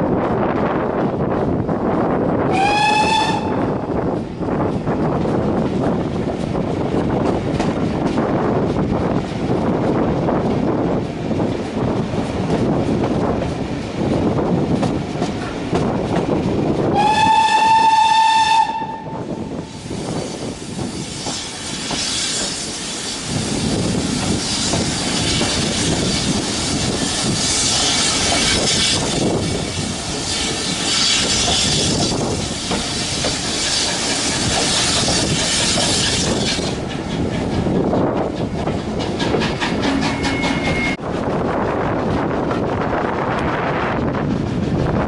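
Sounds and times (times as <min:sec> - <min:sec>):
steam train clattering and hissing: 0:00.4 - 0:45.0
steam locomotive whistle: 0:02.5 - 0:03.7, 0:16.9 - 0:19.4, 0:40.1 - 0:41.0.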